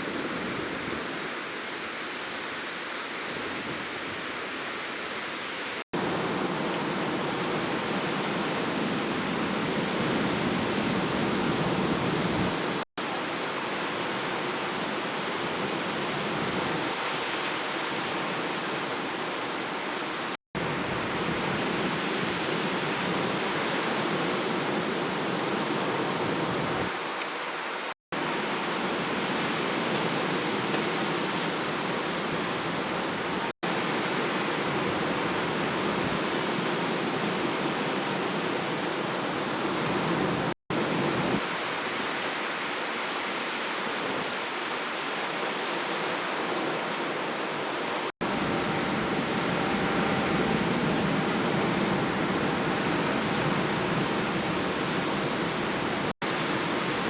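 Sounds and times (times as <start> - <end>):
steady rushing noise: 48.2 - 57.0.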